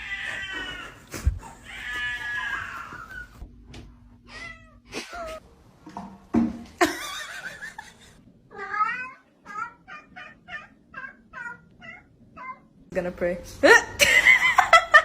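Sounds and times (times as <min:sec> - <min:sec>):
cat meowing: 0:08.5 - 0:12.7.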